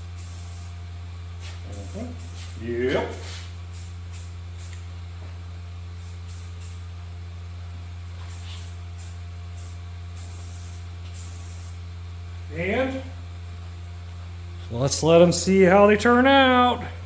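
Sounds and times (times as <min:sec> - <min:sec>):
spray paint can hissing: 0:00.0 - 0:00.8, 0:01.4 - 0:04.9, 0:06.0 - 0:06.9, 0:08.2 - 0:11.8
low electrical hum: 0:00.0 - 0:17.0.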